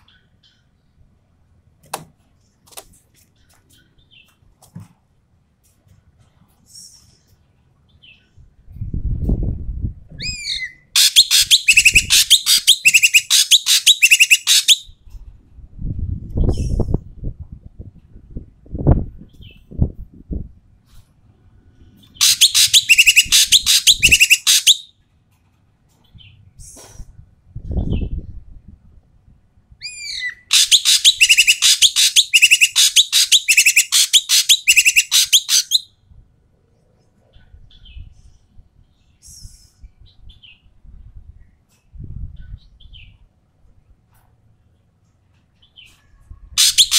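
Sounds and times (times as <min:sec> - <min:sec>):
bird calling harshly: 0:10.2 - 0:14.9, 0:22.2 - 0:24.9, 0:29.8 - 0:35.9, 0:46.6 - 0:46.9
rapid rasping bird chatter: 0:11.0 - 0:14.8, 0:22.2 - 0:24.8, 0:30.5 - 0:35.8, 0:46.6 - 0:46.9.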